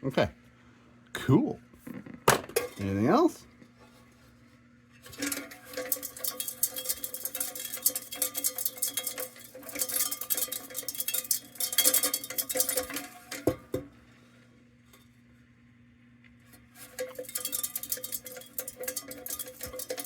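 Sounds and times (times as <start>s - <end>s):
loose piece rattling in metal can: 5.0s - 13.8s, 16.6s - 20.0s.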